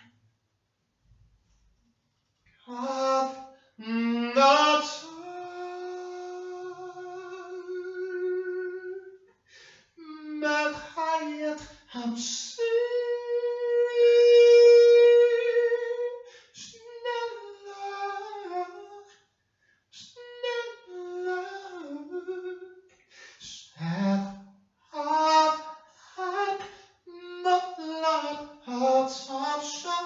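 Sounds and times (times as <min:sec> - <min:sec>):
person singing without words: 0:02.6 - 0:19.2, 0:19.9 - 0:30.0.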